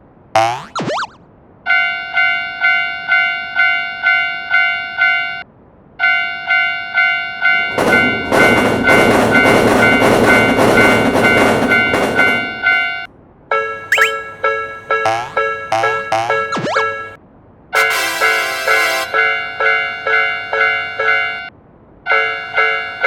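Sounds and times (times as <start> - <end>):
railroad crossing bell ringing: 1.7 - 5.4, 6.0 - 17.2, 17.9 - 21.5, 22.1 - 23.0
train rumbling and clattering: 7.1 - 13.4.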